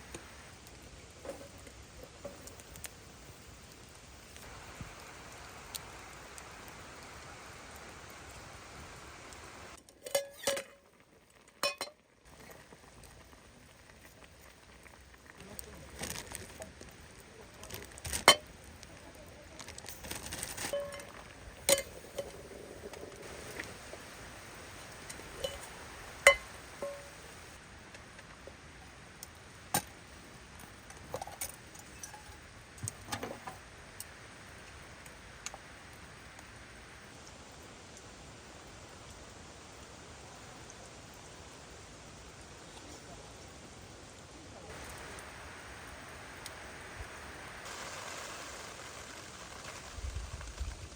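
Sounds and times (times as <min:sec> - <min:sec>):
light rain patter: 0:00.0 - 0:50.9
rain hiss: 0:00.0 - 0:50.9
metallic clinks of cookware: 0:10.0 - 0:10.8, 0:11.6 - 0:12.0.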